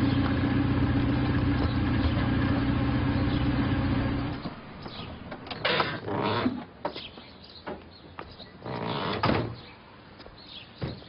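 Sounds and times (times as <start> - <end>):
car engine running: 0.0 - 6.0.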